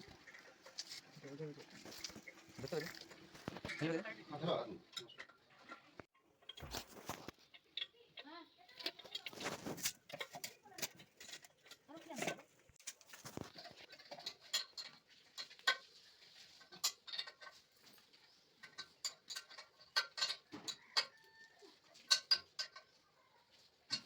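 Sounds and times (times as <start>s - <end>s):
hand tools tapping and clicking: 22.0s - 23.0s.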